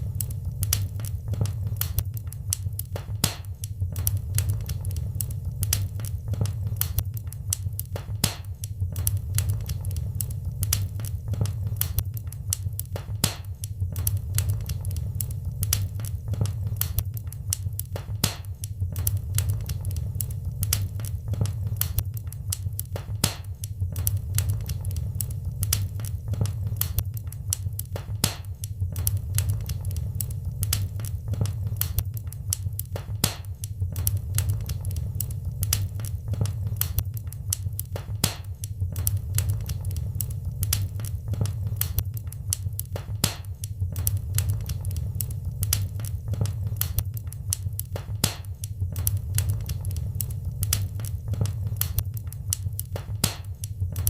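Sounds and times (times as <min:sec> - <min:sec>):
low steady rumble: 0:00.0 - 0:02.6, 0:03.8 - 0:07.6, 0:08.8 - 0:12.6, 0:13.8 - 0:17.6, 0:18.8 - 0:22.3, 0:23.9 - 0:27.6, 0:28.8 - 0:32.6, 0:33.8 - 0:37.3, 0:38.9 - 0:42.2, 0:43.9 - 0:47.2
fire crackling and popping: 0:00.0 - 0:54.0.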